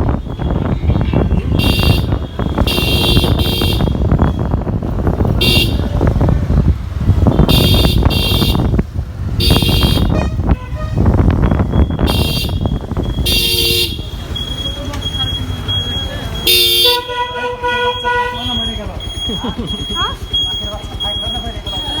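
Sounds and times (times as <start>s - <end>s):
road traffic rumble: 0.0s - 22.0s
high-pitched horn beeps: 0.2s - 4.5s, 7.4s - 8.7s, 9.4s - 15.8s, 16.4s - 19.2s.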